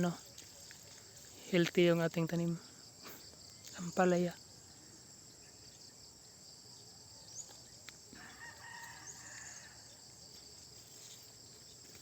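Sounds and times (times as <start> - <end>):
crickets chirping: 0.0 - 12.0
faint rooster crowing: 8.1 - 10.0.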